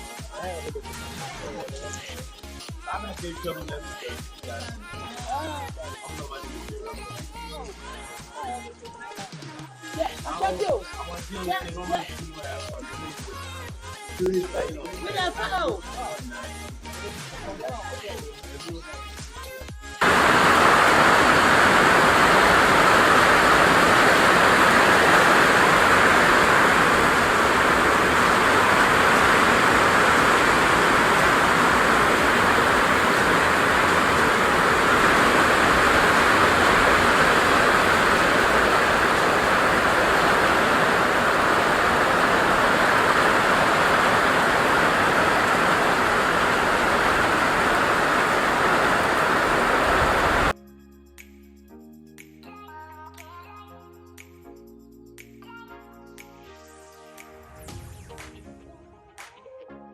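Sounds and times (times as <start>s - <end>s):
water rushing: 20.0s - 50.5s.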